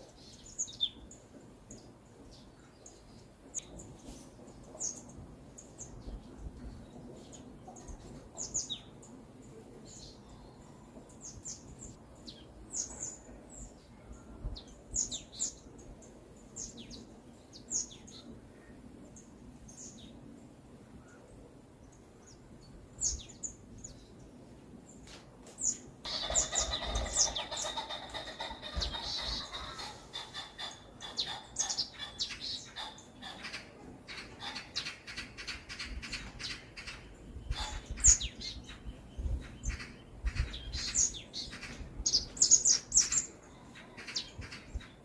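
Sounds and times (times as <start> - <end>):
full bird song: 0.0 - 45.0
birds chirping: 21.0 - 45.0.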